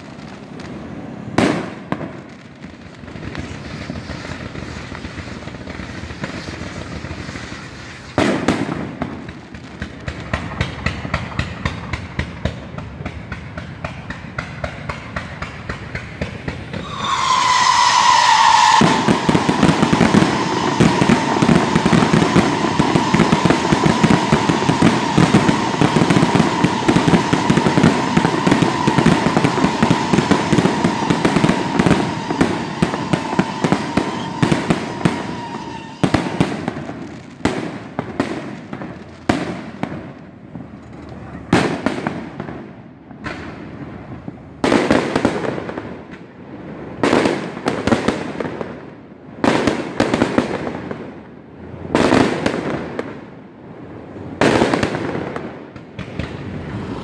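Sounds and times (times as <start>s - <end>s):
fireworks crackling and banging: 0.0s - 57.0s
high firework whistle: 15.9s - 37.0s.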